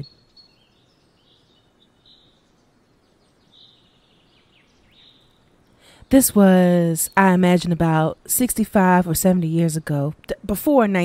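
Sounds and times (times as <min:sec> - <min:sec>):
faint high chirps: 0:00.0 - 0:08.3.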